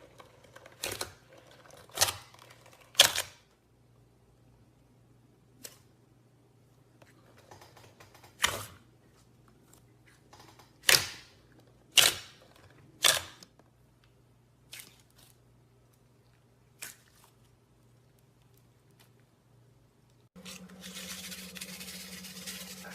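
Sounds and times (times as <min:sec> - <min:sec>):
faint low hum: 0:11.4 - 0:22.9.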